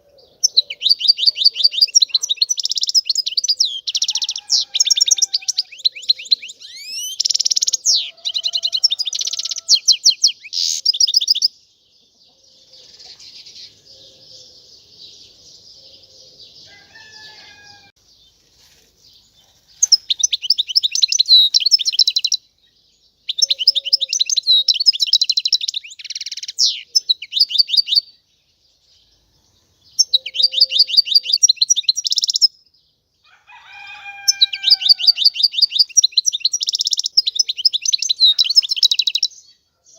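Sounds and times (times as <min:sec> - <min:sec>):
goldfinch twittering song: 0:00.0 - 0:11.6, 0:19.8 - 0:28.2, 0:29.9 - 0:32.7, 0:34.2 - 0:39.5.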